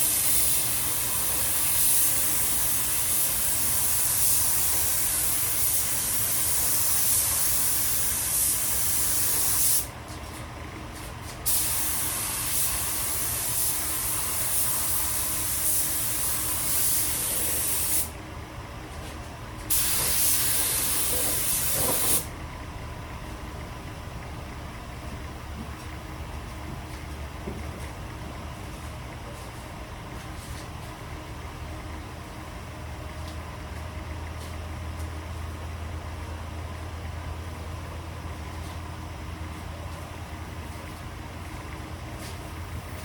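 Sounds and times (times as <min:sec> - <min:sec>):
spray paint can hissing: 0:00.0 - 0:09.9, 0:11.5 - 0:18.1, 0:19.7 - 0:22.3.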